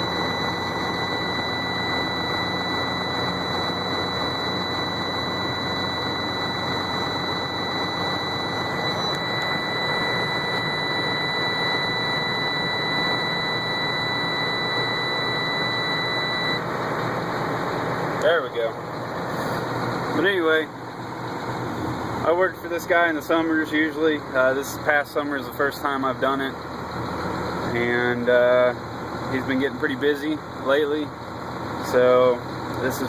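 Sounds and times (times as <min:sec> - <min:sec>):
high warning buzzer tone: 0:00.0 - 0:16.6
diesel truck engine idling: 0:00.0 - 0:33.0.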